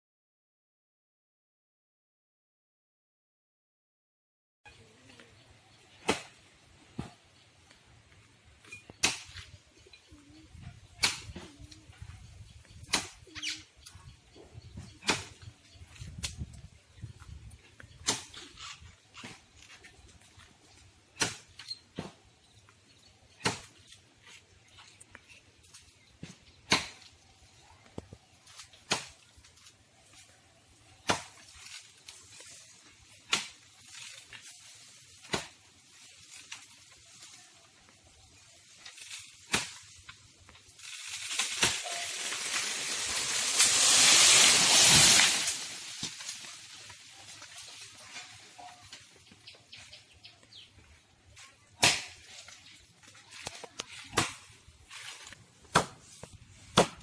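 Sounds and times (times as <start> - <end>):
rushing swish of fronds: 40.8 - 48.4
chopping into palm trunk: 51.8 - 52.2, 54.1 - 54.5, 55.7 - 56.1, 56.7 - 57.0.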